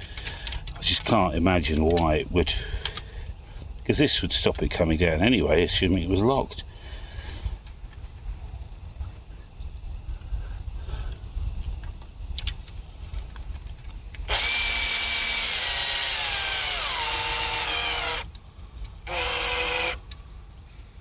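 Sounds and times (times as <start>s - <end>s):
cordless drill running: 14.3s - 18.4s, 19.0s - 20.2s.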